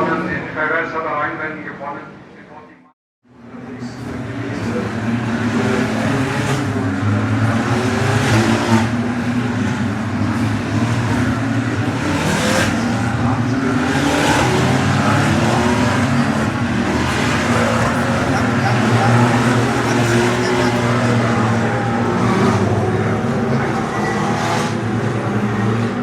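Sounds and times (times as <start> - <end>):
race cars accelerating past: 3.6 - 26.0.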